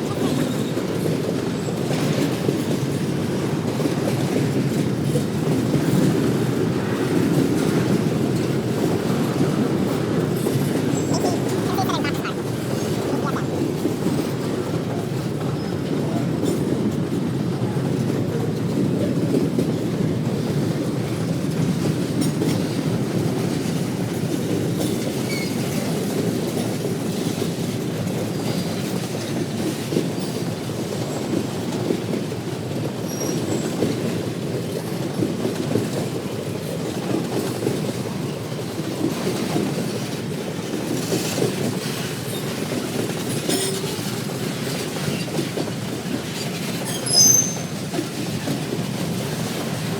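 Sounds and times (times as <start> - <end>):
train cars rumbling past: 0.0 - 49.9
wheels clicking over rail joints: 0.0 - 49.9
faint wheel squeals: 46.4 - 47.9.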